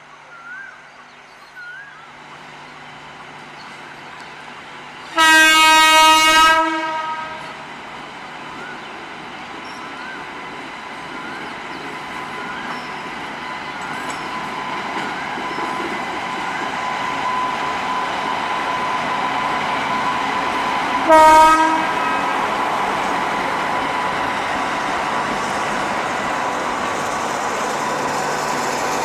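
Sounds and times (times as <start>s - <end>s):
train rumble: 0.0s - 29.0s
locomotive horn blast: 5.1s - 7.6s, 20.9s - 22.8s.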